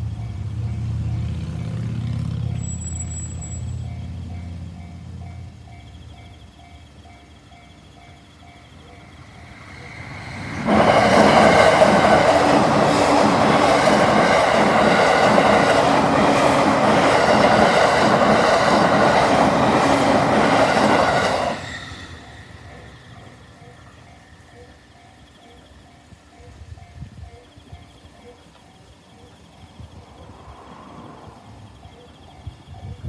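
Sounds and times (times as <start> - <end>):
level crossing warning bell: 0.0 - 29.8
train wheels clacking over rail joints: 8.8 - 23.8.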